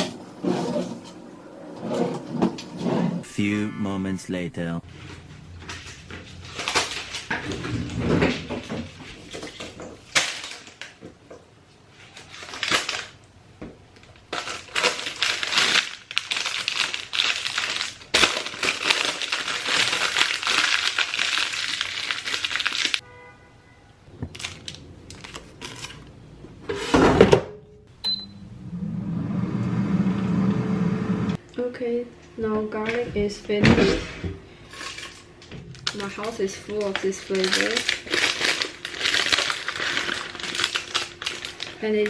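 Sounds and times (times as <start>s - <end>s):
short steady tone: 3.2s - 4.8s
crinkling and rustling: 24.1s - 26.9s, 34.7s - 42.0s.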